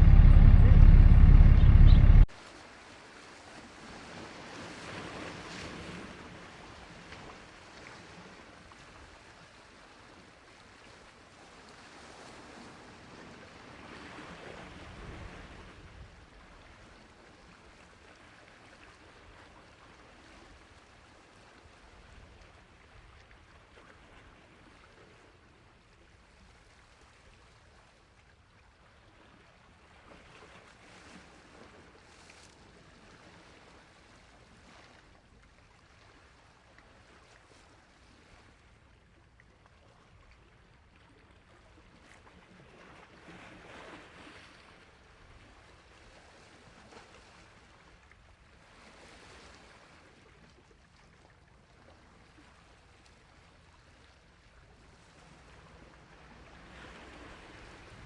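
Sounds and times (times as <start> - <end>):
faint rushing noise: 0.0 - 2.3.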